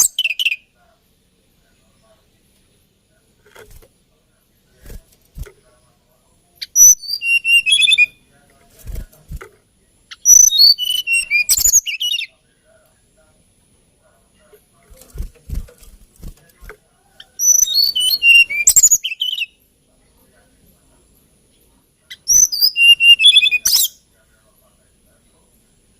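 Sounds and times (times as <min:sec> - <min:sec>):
bird singing whistled notes: 0:00.0 - 0:00.7, 0:06.6 - 0:08.2, 0:10.1 - 0:12.4, 0:17.2 - 0:19.6, 0:22.1 - 0:24.1.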